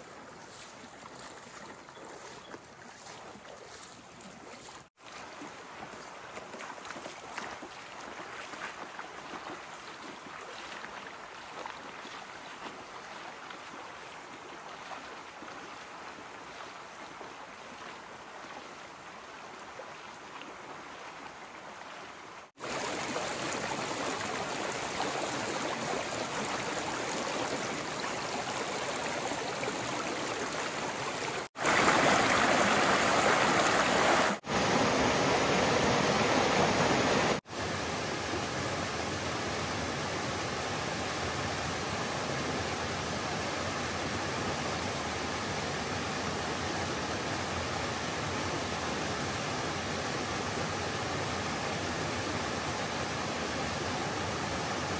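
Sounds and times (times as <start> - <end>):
stream water rushing: 0.0 - 54.9.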